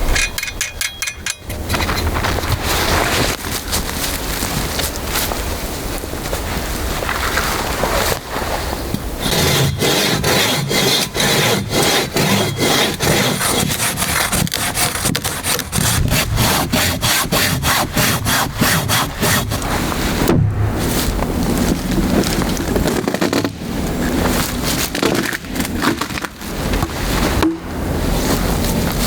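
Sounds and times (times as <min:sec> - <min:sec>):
hand saw cutting log: 0:09.2 - 0:20.2.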